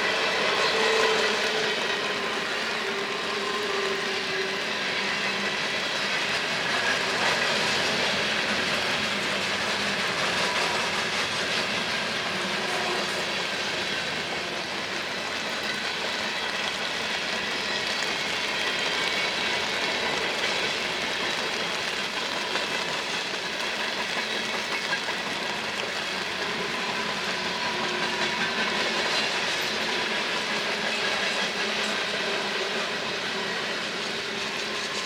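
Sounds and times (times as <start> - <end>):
freight train wheels on rails: 0.0 - 35.0.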